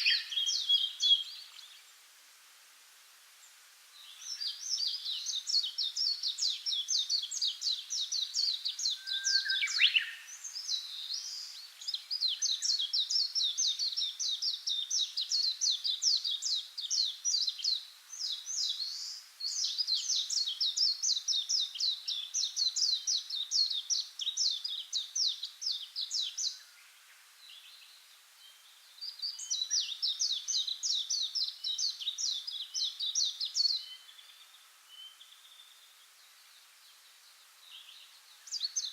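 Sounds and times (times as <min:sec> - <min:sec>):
songbird trilling: 0:04.4 - 0:11.5.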